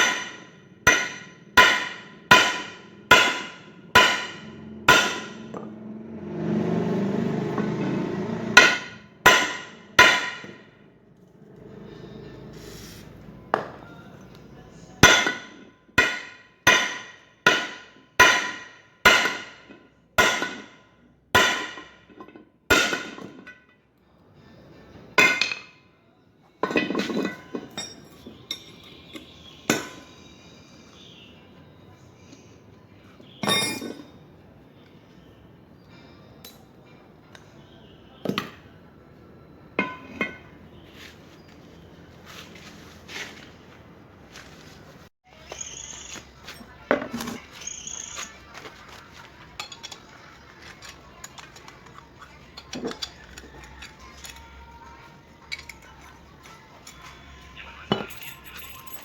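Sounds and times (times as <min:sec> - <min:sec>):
hammer striking metal: 0:00.0 - 0:05.7, 0:08.6 - 0:10.8, 0:15.0 - 0:22.1, 0:22.7 - 0:23.4, 0:25.2 - 0:25.8, 0:26.7 - 0:30.2, 0:33.4 - 0:34.2, 0:39.8 - 0:40.6
metal clanking on steel: 0:26.6 - 0:30.1, 0:33.4 - 0:34.2, 0:39.8 - 0:40.6, 0:48.9 - 0:54.5.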